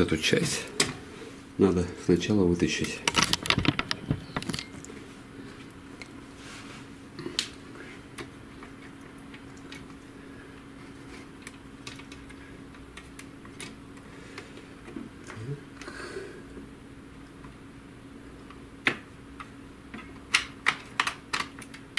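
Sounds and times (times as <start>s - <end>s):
faint steady hum: 0.0s - 21.9s
plastic parts clicking: 3.0s - 4.7s, 11.4s - 12.4s, 18.8s - 21.9s.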